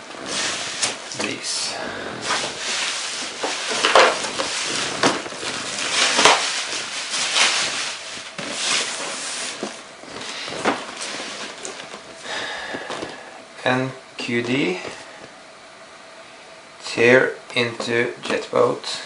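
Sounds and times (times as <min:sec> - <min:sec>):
packaging rustling and scraping: 0:00.0 - 0:13.2.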